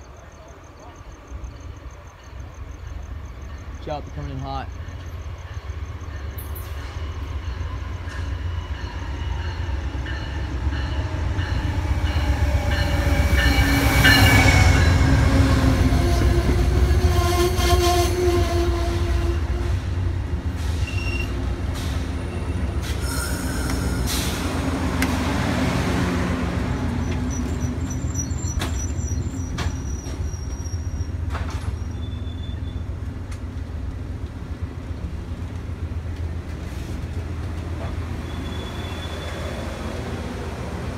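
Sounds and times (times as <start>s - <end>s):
train rumbling past: 0.0s - 40.9s
wheel and brake squeals: 20.7s - 21.4s, 26.7s - 33.0s, 38.2s - 39.8s.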